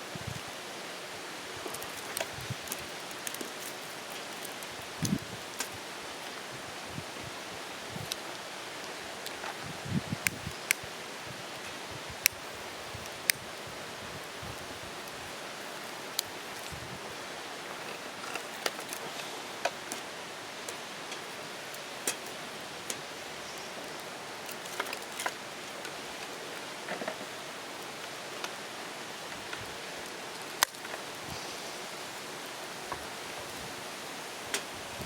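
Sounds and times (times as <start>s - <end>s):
wood fire crackling: 0.0s - 35.0s
fire popping and snapping: 1.5s - 6.5s, 7.8s - 31.7s.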